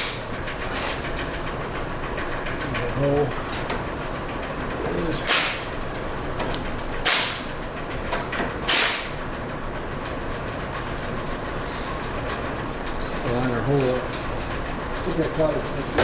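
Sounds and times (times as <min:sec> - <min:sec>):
wrench rasping: 0:05.2 - 0:05.8, 0:06.5 - 0:07.5, 0:08.7 - 0:09.2.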